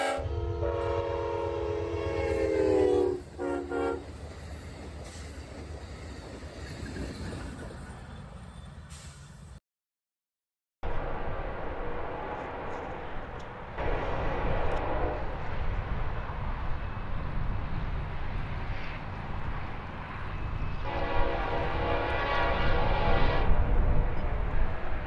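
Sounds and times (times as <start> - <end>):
train air horn blasts: 0.0 - 4.1, 13.8 - 15.5, 20.8 - 24.1
train rumbling: 0.0 - 9.6, 10.8 - 25.0.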